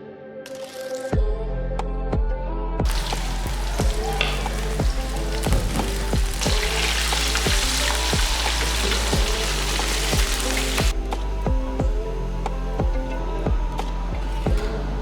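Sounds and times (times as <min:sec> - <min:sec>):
background music with beat: 0:01.0 - 0:15.0
fish sizzling in hot oil: 0:02.9 - 0:11.0.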